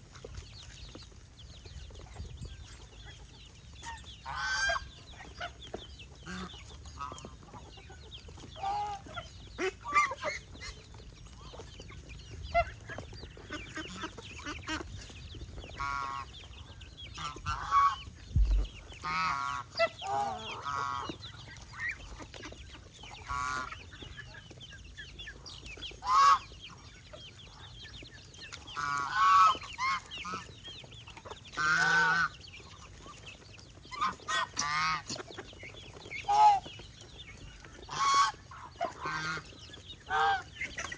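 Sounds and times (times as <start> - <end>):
geese honking: 3.8 - 5.5, 17.2 - 22.0, 23.2 - 23.7, 26.0 - 26.5, 28.7 - 30.5, 31.5 - 32.4, 33.9 - 35.2, 37.8 - 40.9.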